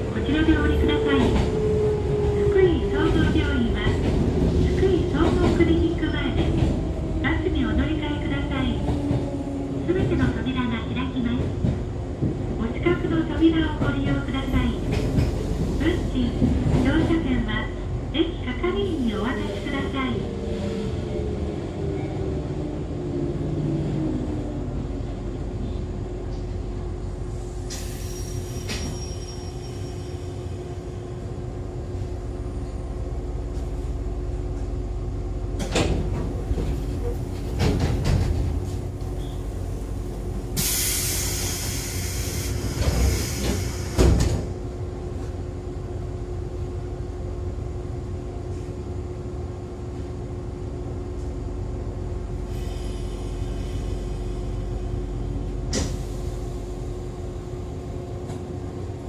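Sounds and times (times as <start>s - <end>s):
train interior rumble and hum: 0.0s - 59.0s.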